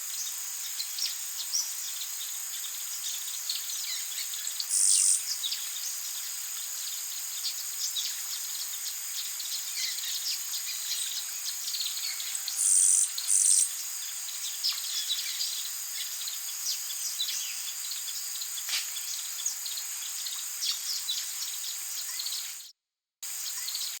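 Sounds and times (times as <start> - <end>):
insects chorus: 0.0 - 24.0
birds chirping: 3.9 - 5.6, 9.5 - 16.1.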